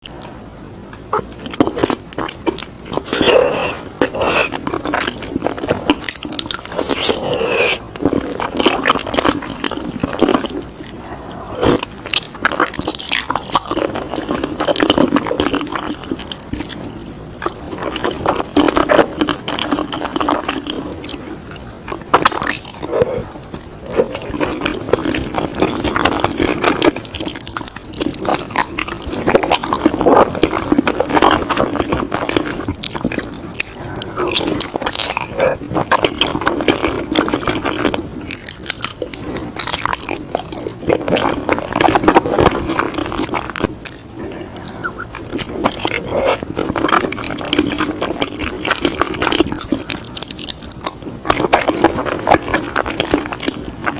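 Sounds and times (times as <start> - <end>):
person chewing: 0.0 - 53.9
mouth clicks and smacks: 0.9 - 53.9.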